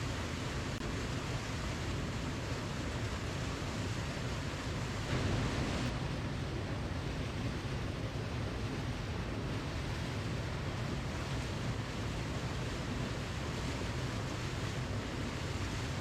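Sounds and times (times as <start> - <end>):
waterfall rushing water: 0.0 - 6.0.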